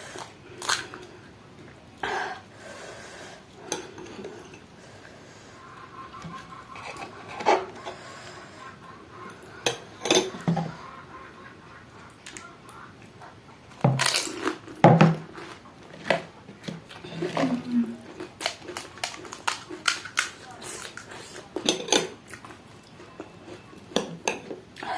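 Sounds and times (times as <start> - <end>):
dishes clinking: 9.6 - 10.8, 21.6 - 22.2, 23.2 - 24.6
crisp shells crunching: 13.9 - 16.3, 17.2 - 21.4.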